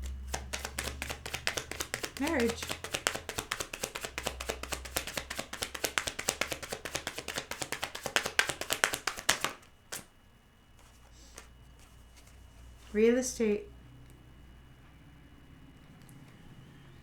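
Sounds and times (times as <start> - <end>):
cards being shuffled: 0.0 - 10.1, 10.8 - 12.4.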